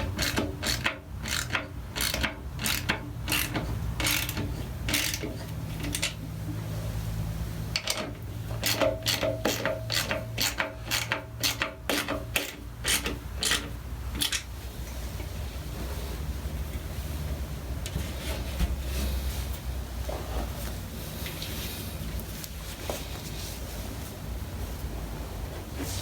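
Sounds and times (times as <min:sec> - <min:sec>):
ratchet wrench clicking: 0:00.1 - 0:06.2, 0:08.6 - 0:14.4.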